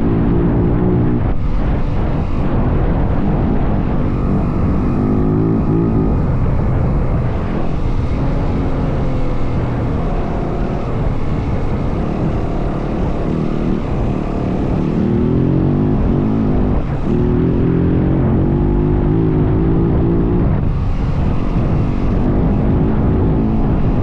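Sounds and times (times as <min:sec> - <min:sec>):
dirt bike engine revving: 0:02.9 - 0:20.4.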